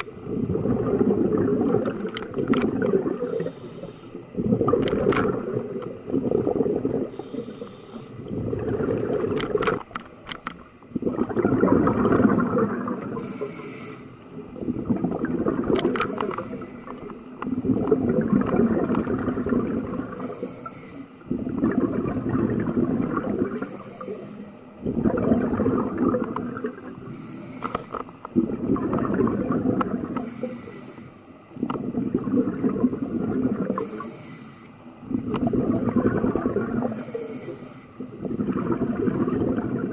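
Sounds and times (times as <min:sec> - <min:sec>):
exhaled bubbles rushing: 0:00.0 - 0:03.5, 0:04.2 - 0:07.6, 0:08.2 - 0:09.8, 0:10.9 - 0:13.5, 0:14.3 - 0:20.4, 0:21.2 - 0:23.8, 0:24.8 - 0:27.2, 0:28.4 - 0:30.3, 0:31.6 - 0:34.0, 0:35.0 - 0:37.2, 0:38.0 - 0:39.9
regulator inhale hiss: 0:03.2 - 0:04.3, 0:07.1 - 0:08.2, 0:13.2 - 0:14.2, 0:16.1 - 0:17.1, 0:20.1 - 0:21.2, 0:23.5 - 0:24.7, 0:27.0 - 0:28.0, 0:30.2 - 0:31.3, 0:33.7 - 0:34.8, 0:36.9 - 0:38.0.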